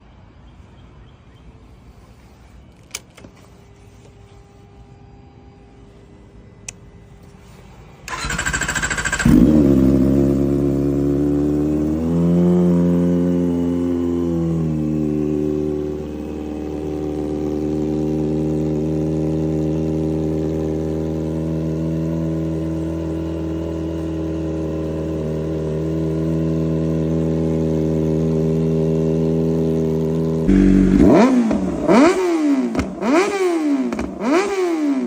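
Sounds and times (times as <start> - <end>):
motorcycle engine revving and idling: 8.0 - 35.0
electric starter cranking: 8.1 - 9.5.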